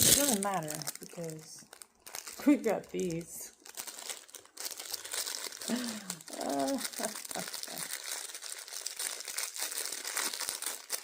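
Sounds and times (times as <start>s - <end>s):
plastic crinkling by hand: 0.0s - 11.0s.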